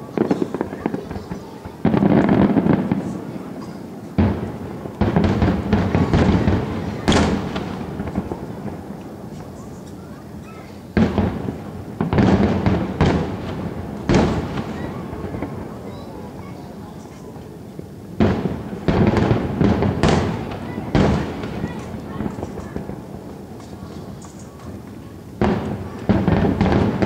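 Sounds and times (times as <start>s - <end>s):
fireworks booming and crackling: 0.0s - 27.0s.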